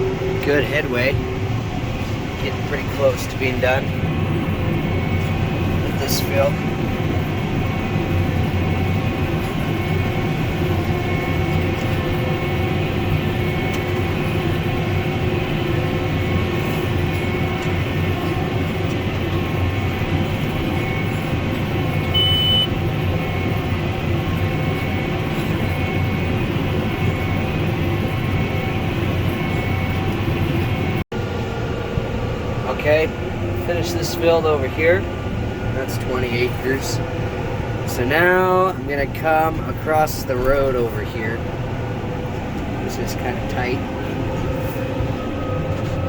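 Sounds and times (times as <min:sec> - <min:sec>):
tractor running under load: 0:00.0 - 0:46.0
short high beep: 0:22.0 - 0:22.8.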